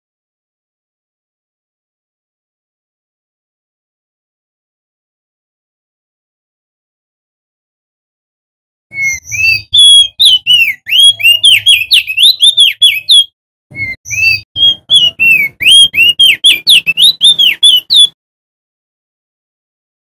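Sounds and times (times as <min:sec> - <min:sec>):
bird singing whistled notes: 0:08.9 - 0:18.2.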